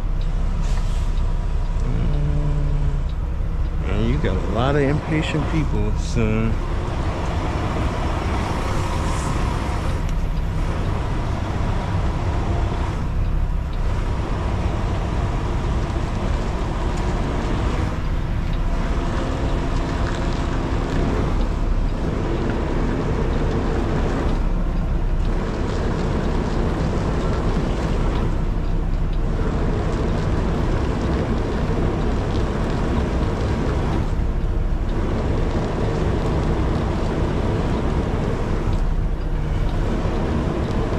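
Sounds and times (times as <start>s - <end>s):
truck diesel engine rumbling: 0.0s - 40.9s.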